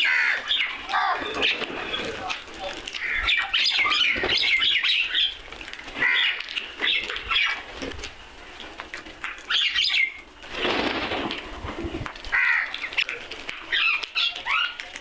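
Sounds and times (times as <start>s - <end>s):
crows cawing: 0.0s - 1.4s, 2.9s - 4.2s, 5.9s - 6.6s, 12.3s - 13.0s.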